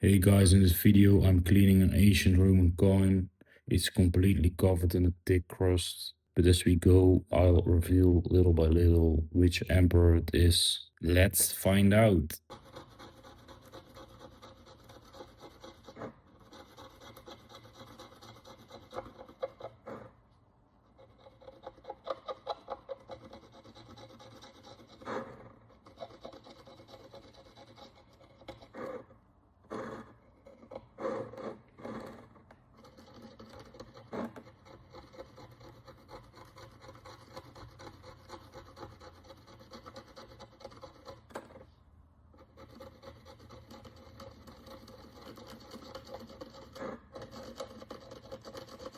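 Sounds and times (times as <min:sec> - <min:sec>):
hand tool scraping metal coin: 0:12.5 - 0:20.1, 0:21.0 - 0:29.1, 0:29.7 - 0:41.7, 0:42.4 - 0:48.9.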